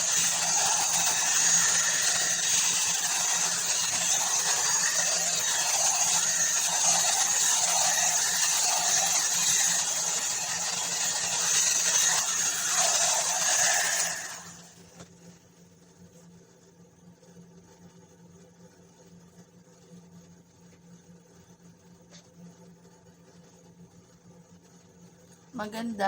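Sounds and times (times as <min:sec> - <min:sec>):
hot air brush blowing: 0:00.0 - 0:14.9.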